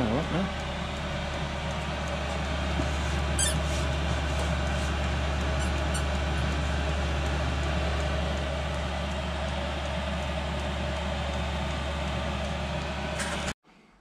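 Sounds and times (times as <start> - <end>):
heater blower humming: 0.0 - 13.6
high squeak: 3.4 - 3.8, 5.6 - 6.2.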